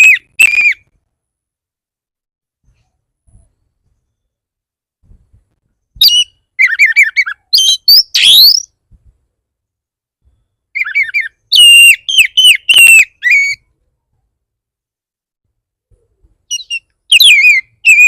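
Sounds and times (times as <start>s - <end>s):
bird singing chirps and trills: 5.8s - 8.8s, 10.7s - 13.6s, 16.5s - 18.0s.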